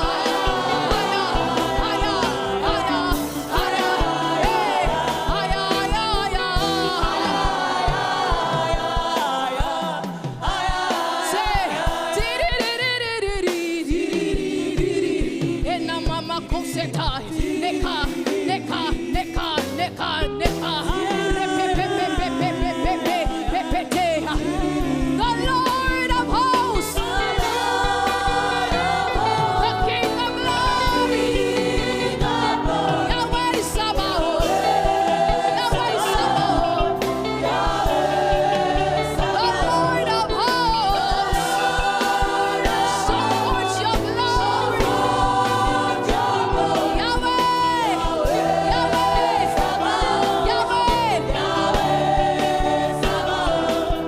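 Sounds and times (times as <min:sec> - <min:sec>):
keyboard chords: 0:00.0 - 0:11.0, 0:24.2 - 0:54.0
bass line: 0:00.0 - 0:12.3
drums: 0:00.0 - 0:54.0
voices singing together: 0:00.0 - 0:54.0.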